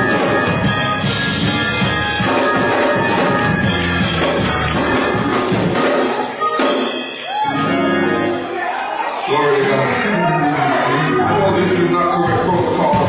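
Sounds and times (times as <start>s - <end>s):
bass: 0.0s - 6.2s, 9.3s - 13.0s
loud music with drums: 0.0s - 7.9s.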